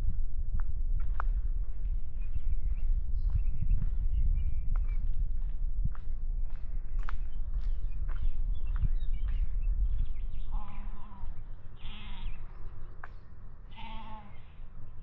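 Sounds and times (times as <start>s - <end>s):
low rumble: 0.0s - 15.0s
farm animals bleating: 10.6s - 12.4s, 13.7s - 14.6s.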